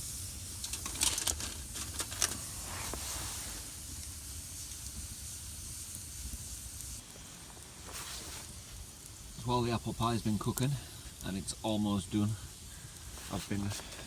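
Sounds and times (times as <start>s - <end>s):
campfire crackling: 0.0s - 14.0s
fire popping: 0.0s - 14.0s
steady hiss: 0.0s - 14.0s.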